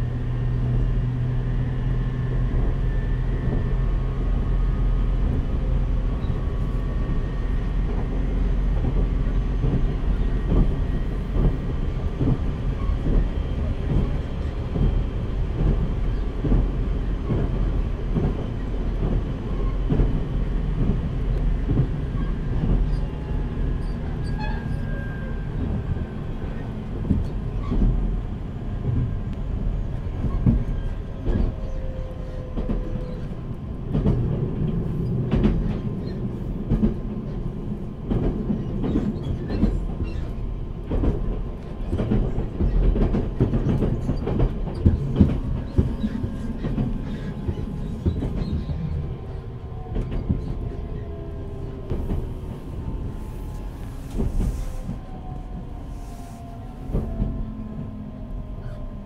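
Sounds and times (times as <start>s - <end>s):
train wheels rumbling: 0.0s - 59.0s
rail joints clattering: 30.1s - 51.3s.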